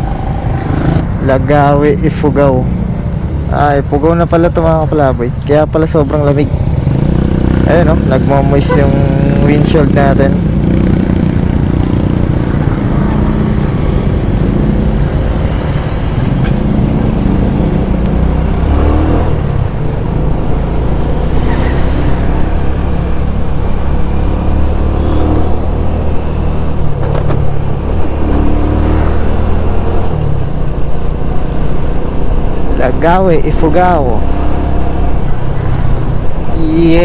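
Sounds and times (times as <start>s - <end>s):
road and wind noise: 0.0s - 37.0s
motorcycle engine running: 6.4s - 15.5s.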